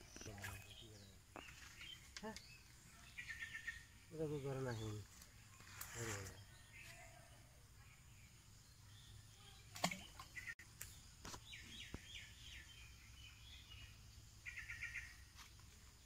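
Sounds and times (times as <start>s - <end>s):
bird chirping: 0.0s - 16.0s
bird trill: 11.6s - 15.2s.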